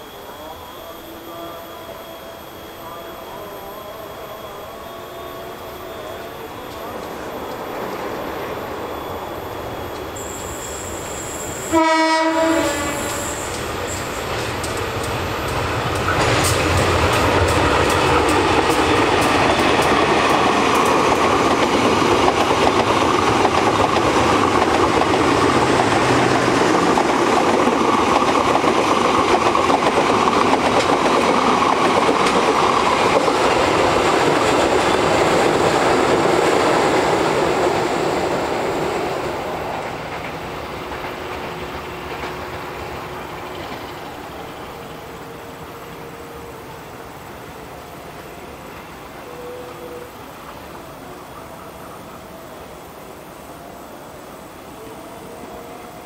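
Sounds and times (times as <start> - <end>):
passenger train passing: 0.0 - 56.0
locomotive horn: 11.6 - 13.6.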